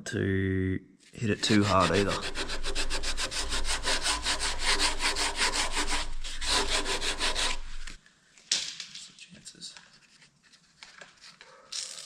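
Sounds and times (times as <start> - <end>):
abrasive pad scrubbing metal: 1.2 - 8.0.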